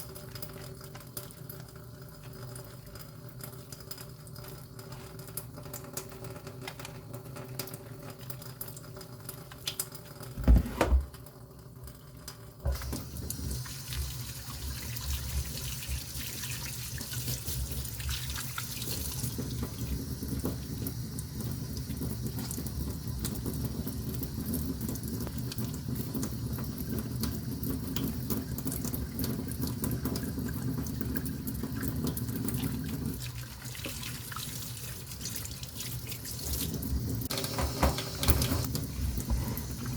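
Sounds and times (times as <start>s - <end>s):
water running: 0.0s - 39.9s.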